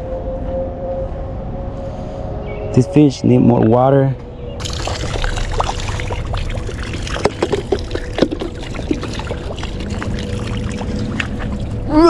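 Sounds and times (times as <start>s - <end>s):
water being poured: 4.6s - 12.0s
water splashing and dripping: 4.6s - 12.0s.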